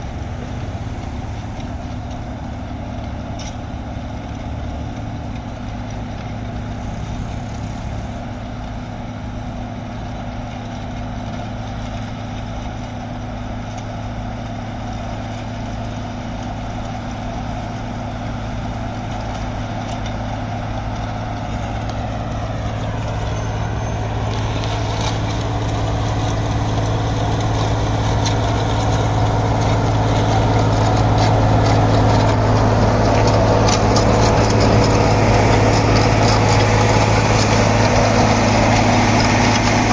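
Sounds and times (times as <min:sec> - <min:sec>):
heavy diesel engine running: 0:00.0 - 0:39.9
pitch-sliding whine: 0:19.1 - 0:39.9.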